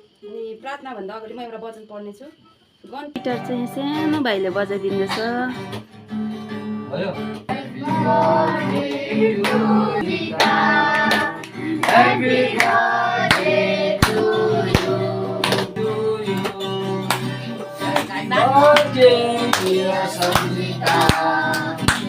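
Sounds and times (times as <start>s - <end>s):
strummed acoustic guitar: 3.2s - 22.0s
voices singing together: 7.4s - 22.0s
hand claps: 8.7s - 9.7s, 10.3s - 22.0s.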